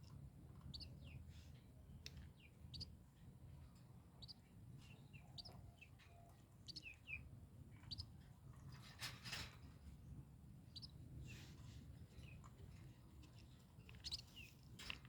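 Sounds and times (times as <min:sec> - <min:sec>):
baby birds chirping: 0:00.7 - 0:01.2, 0:04.2 - 0:04.4, 0:05.0 - 0:05.9, 0:07.9 - 0:08.9, 0:10.7 - 0:11.4, 0:13.9 - 0:14.6.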